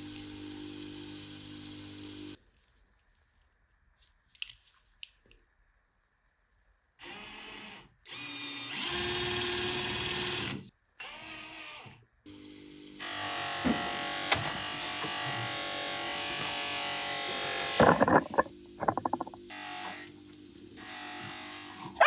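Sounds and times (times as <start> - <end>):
small electric power tool running: 0.0 - 2.4.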